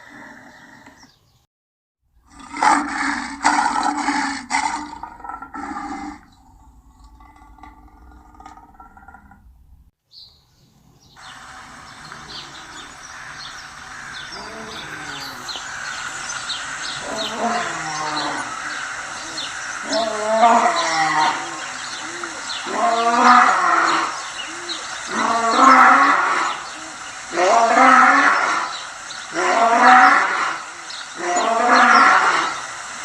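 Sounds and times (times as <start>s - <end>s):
small birds chirping: 0.5s - 1.4s, 10.1s - 33.0s
lion roaring: 11.6s - 28.7s, 29.3s - 32.6s.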